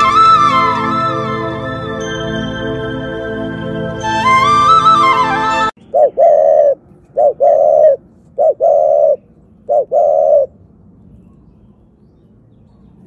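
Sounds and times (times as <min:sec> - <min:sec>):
bird cooing: 0:05.8 - 0:10.6.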